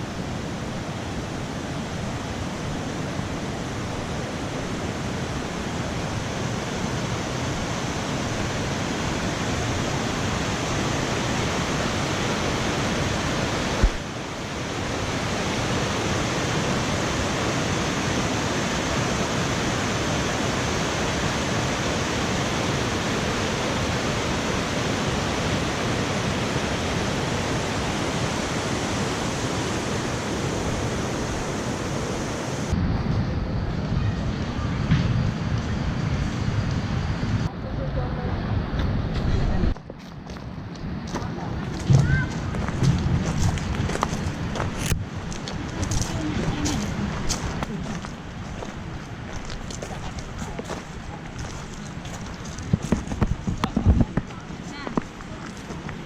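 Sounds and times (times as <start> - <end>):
waterfall rushing: 0.0 - 32.8.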